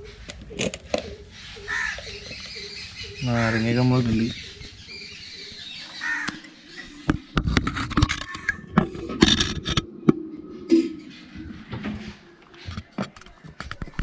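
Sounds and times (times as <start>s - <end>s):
scraping and rustling: 7.0s - 10.0s
sharp knocks and clicks: 7.0s - 10.2s.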